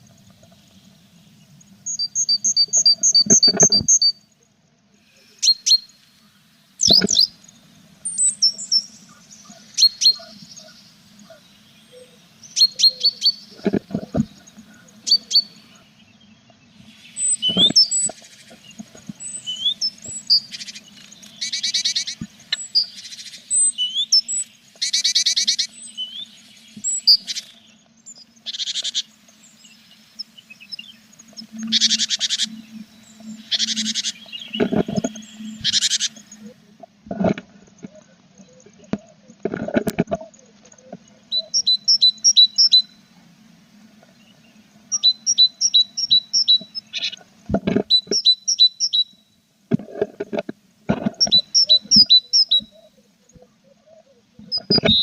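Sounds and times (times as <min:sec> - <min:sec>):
nestlings calling in buzzy bursts: 0:05.3 - 0:16.0, 0:16.8 - 0:37.0
low steady hum: 0:05.8 - 0:48.0
thin rising peeps: 0:28.4 - 0:36.8.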